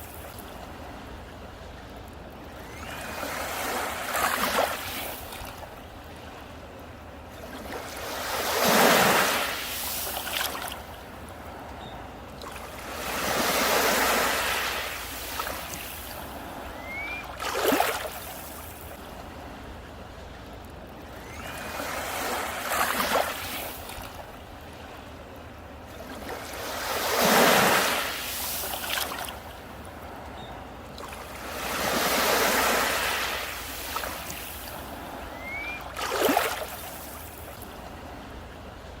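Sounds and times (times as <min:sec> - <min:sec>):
sea waves washing onto beach: 0:02.2 - 0:19.7, 0:21.2 - 0:38.3
hiss of surf: 0:08.1 - 0:10.7, 0:12.8 - 0:18.8, 0:26.6 - 0:29.3, 0:31.3 - 0:37.4.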